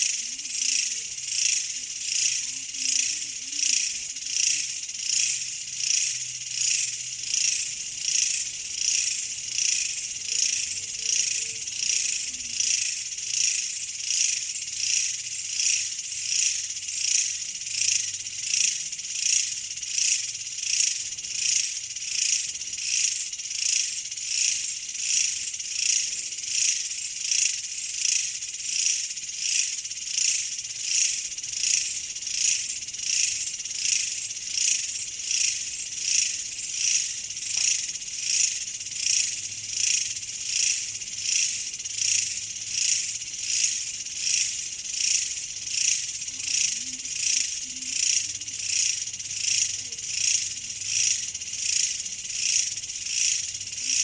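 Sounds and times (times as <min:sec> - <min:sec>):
insects chirring: 0:00.0 - 0:54.0.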